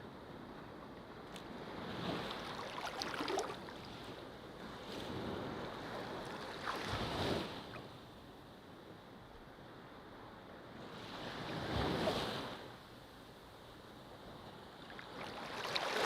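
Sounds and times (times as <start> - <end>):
waves washing in: 1.7 - 7.9, 14.8 - 16.0.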